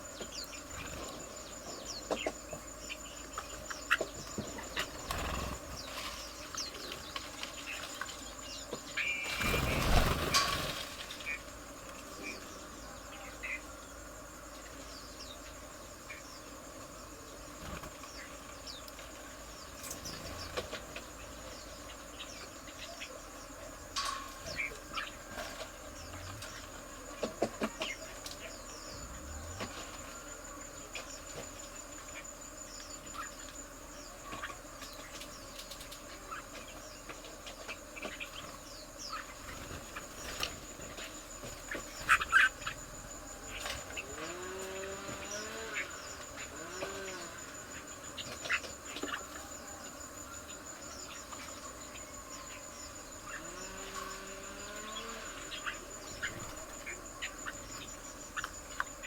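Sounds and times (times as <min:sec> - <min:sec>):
high insect drone: 0:00.0 - 0:59.0.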